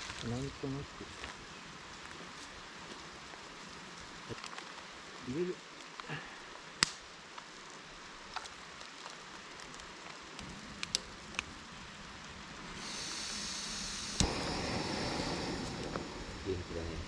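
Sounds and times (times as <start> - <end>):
pot sizzling: 10.4 - 17.0.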